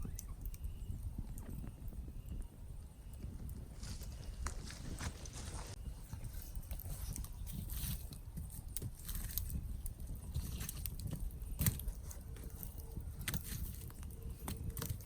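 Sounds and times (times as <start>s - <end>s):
campfire crackling and popping: 0.0s - 15.0s
low rumble of flames: 0.0s - 15.0s.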